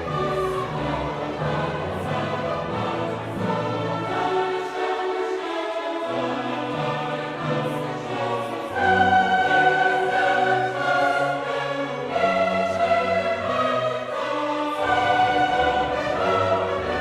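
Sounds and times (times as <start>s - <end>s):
choir singing held notes: 0.0s - 17.0s
orchestral accompaniment: 0.0s - 17.0s.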